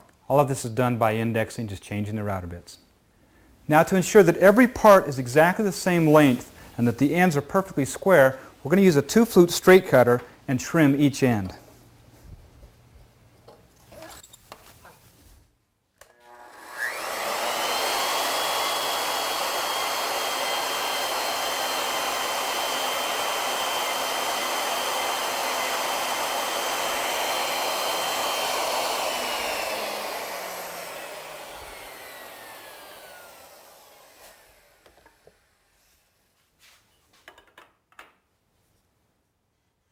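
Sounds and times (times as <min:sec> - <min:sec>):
router whine: 0:16.0 - 0:35.7.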